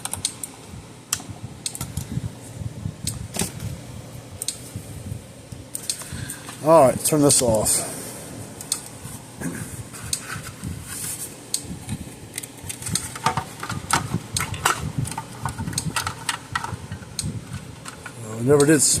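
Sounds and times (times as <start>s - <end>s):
hands handling device clicks and knocks: 11.9s - 18.2s.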